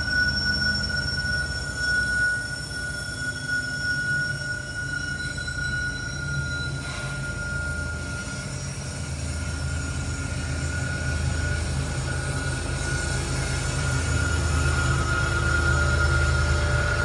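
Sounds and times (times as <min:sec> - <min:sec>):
high-pitched wheel squeal: 0:00.0 - 0:17.0
train rumbling: 0:04.3 - 0:17.0.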